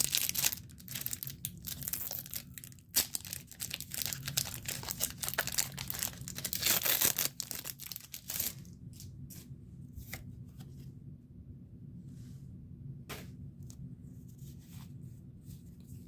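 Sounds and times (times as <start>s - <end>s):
foil pack crinkling: 0.0s - 9.1s.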